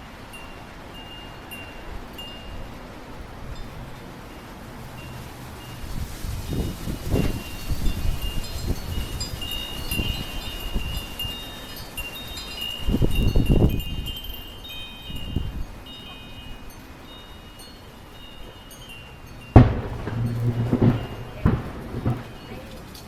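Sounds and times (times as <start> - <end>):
metal wind chimes ringing: 0.0 - 23.0
wind buffeting microphone: 0.0 - 23.0
tree falling with loud crash: 19.5 - 23.0.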